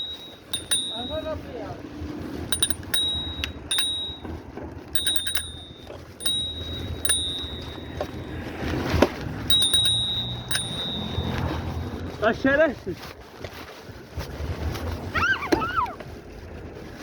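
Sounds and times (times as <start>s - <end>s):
bicycle bell dinging: 0.0s - 1.7s, 2.3s - 12.1s.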